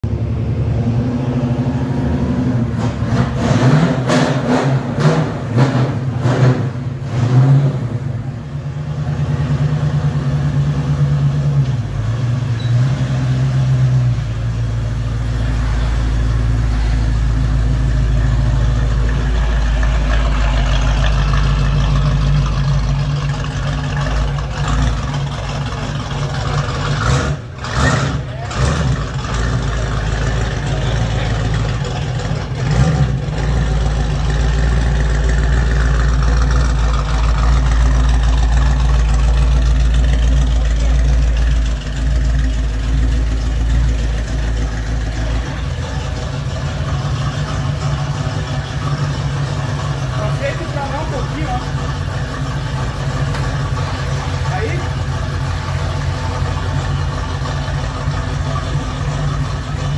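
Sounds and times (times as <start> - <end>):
deep exhaust rumble: 0.0 - 59.9
car engine revving: 0.1 - 59.9.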